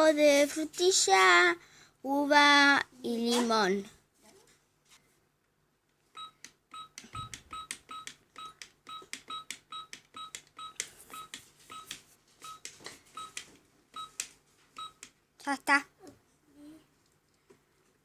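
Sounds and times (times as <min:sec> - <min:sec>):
short electronic beeps: 0:06.2 - 0:12.6.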